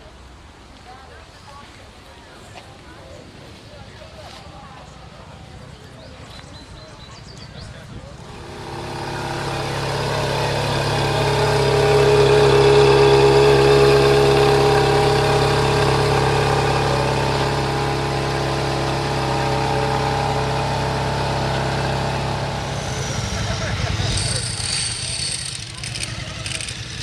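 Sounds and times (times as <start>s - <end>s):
car engine running: 8.0s - 27.0s.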